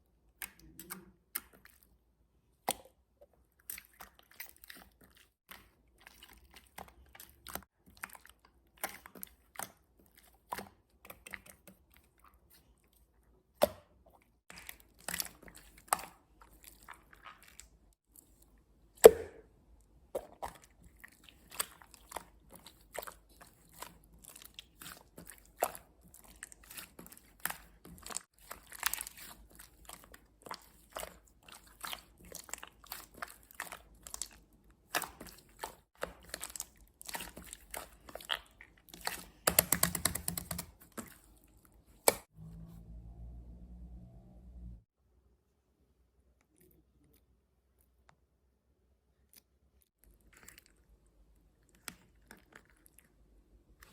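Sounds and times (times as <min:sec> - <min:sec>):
loud slime pops: 0:19.0 - 0:19.4
slime squishing crackles: 0:20.4 - 0:42.3.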